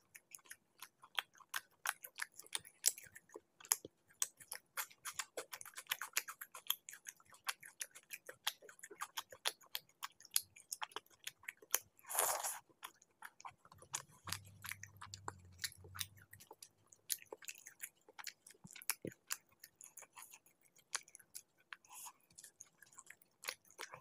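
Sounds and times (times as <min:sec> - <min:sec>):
wet chewing and mouth clicks: 0:00.0 - 0:24.0
faint low hum: 0:10.6 - 0:24.0.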